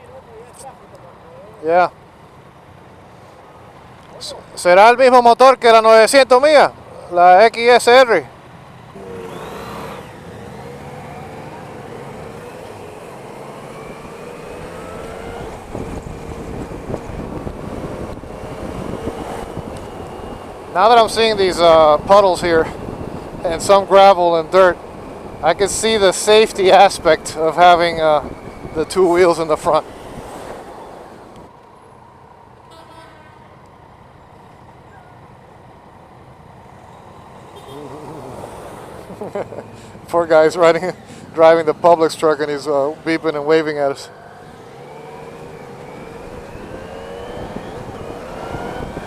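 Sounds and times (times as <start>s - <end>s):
wind and road noise: 0.0s - 49.0s
truck horn beep: 32.7s - 33.5s, 37.5s - 37.9s.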